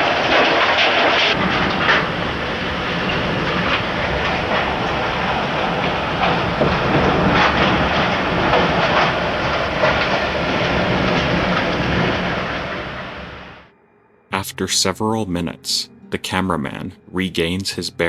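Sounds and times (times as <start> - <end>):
tornado wind roaring on microphone: 0.0 - 13.7.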